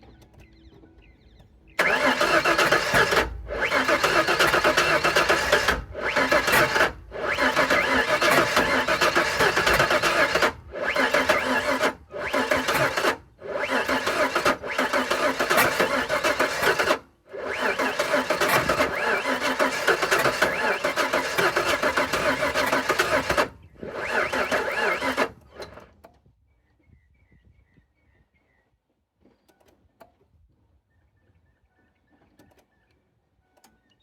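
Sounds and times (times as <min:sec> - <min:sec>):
starter cranking engine: 0:01.8 - 0:26.1.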